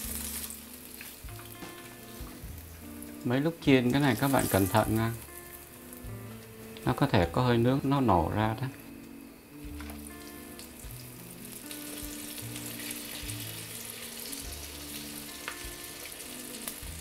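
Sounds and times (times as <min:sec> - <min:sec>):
oil crackling and popping: 0:00.0 - 0:03.1, 0:09.8 - 0:17.0
chicken deep-frying in oil: 0:00.0 - 0:05.6, 0:10.0 - 0:17.0.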